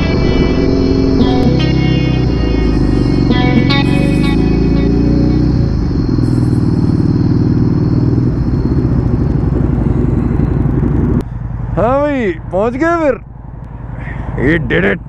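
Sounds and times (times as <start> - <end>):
background music: 0.0 - 5.7
motorcycle engine rumble: 0.0 - 15.0
road noise: 0.0 - 15.0.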